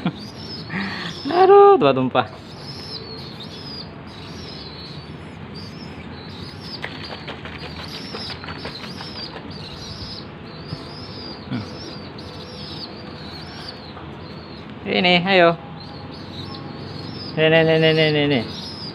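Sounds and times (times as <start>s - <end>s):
young pigeon begging squeaks: 0.1s - 1.6s, 2.2s - 14.8s, 15.8s - 18.9s
wing flaps: 6.7s - 9.6s.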